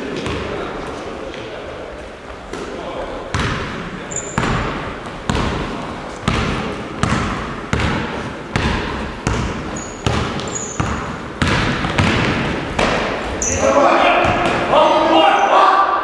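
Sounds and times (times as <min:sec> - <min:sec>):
basketball bouncing on gym floor: 0:00.2 - 0:00.5, 0:03.3 - 0:13.6, 0:14.2 - 0:14.7.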